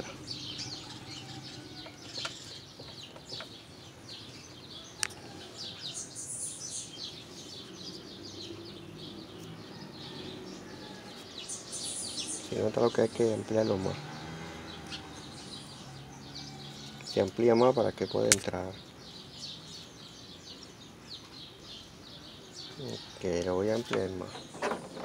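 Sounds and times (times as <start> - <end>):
small birds chirping: 0.0 - 25.0
sharp click: 18.3 - 18.5.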